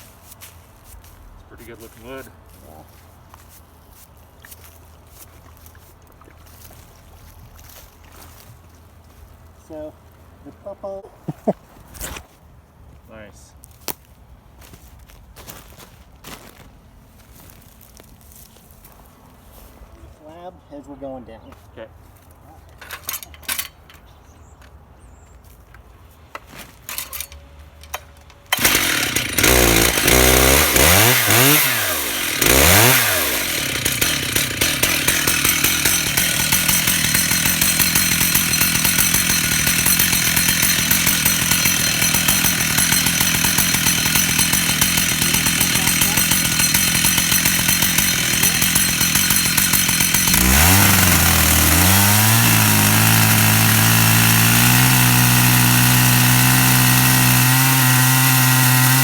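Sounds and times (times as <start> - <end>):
chainsaw ripping a log: 28.4 - 59.0.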